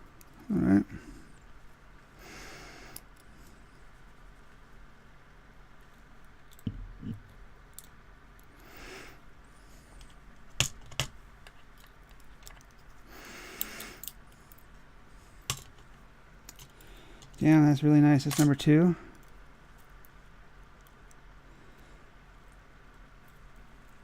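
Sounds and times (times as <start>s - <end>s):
small metal clicks and taps: 16.5s - 17.4s.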